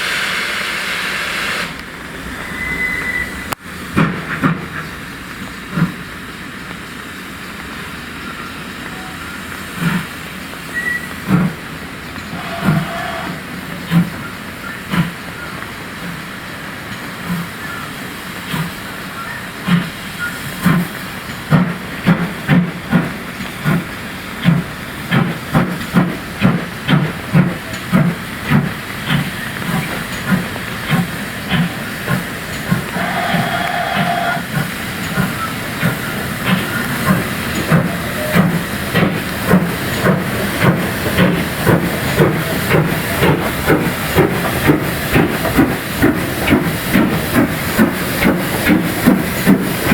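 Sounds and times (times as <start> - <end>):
steady hiss of steam: 0.0 - 49.9
steam locomotive exhaust beats: 0.0 - 49.9
train moving slowly: 0.0 - 49.9.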